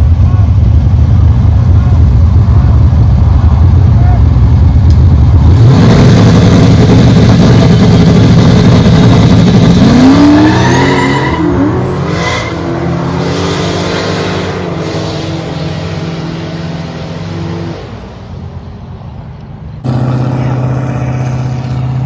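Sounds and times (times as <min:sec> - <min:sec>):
car engine revving and accelerating: 0:04.6 - 0:18.0, 0:19.8 - 0:22.0.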